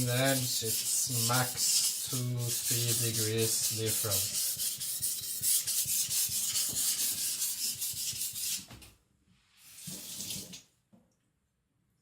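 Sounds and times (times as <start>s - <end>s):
knife sharpening on whetstone: 0.0s - 8.6s.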